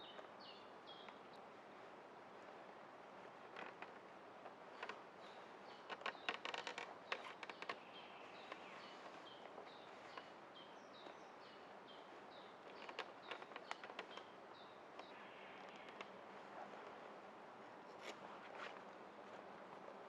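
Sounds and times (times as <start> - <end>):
faint forest hiss: 0.0 - 20.0
dry crackling clicks: 5.8 - 8.7, 12.6 - 14.3, 14.9 - 16.2.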